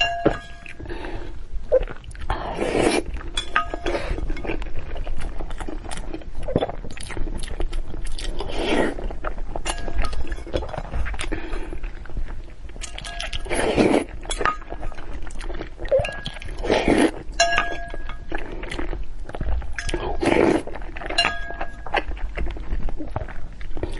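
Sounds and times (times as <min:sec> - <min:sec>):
utensils clinking on a bowl: 0:00.0 - 0:00.8, 0:03.3 - 0:04.7, 0:12.8 - 0:13.5, 0:17.4 - 0:18.4, 0:21.1 - 0:22.0
chewing and mouth noises: 0:00.0 - 0:23.9.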